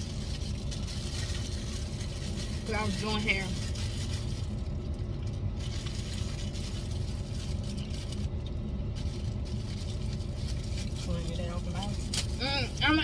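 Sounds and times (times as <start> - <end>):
car cabin rumble while driving: 0.0 - 13.0.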